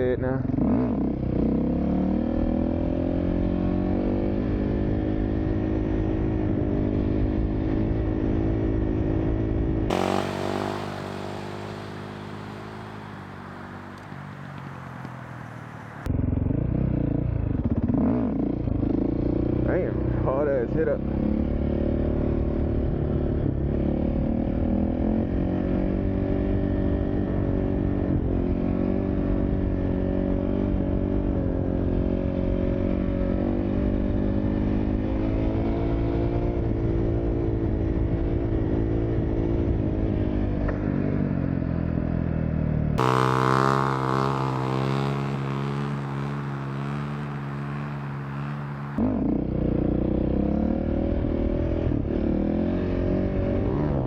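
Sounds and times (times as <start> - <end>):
dirt bike engine revving: 9.9 - 16.1, 43.0 - 54.0.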